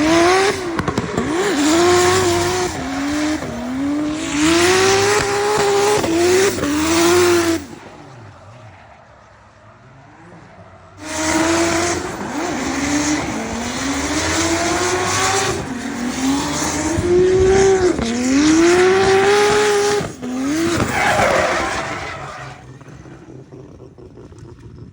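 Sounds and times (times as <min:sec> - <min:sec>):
car engine revving hard: 0:00.0 - 0:08.8, 0:09.8 - 0:24.1
tyre squeal: 0:11.0 - 0:23.1.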